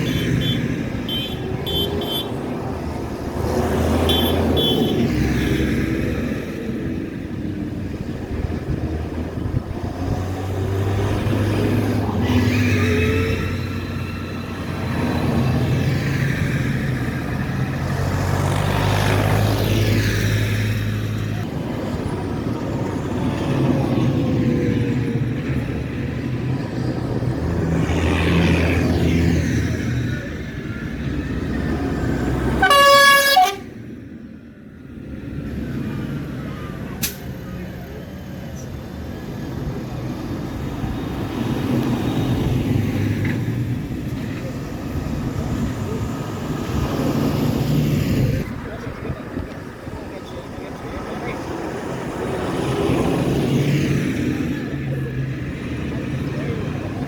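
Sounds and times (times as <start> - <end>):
vehicle horn: 0.0 - 2.4, 4.0 - 5.0, 32.5 - 33.8
vehicle engine whine: 0.0 - 57.0
vehicle engines droning: 0.0 - 57.0.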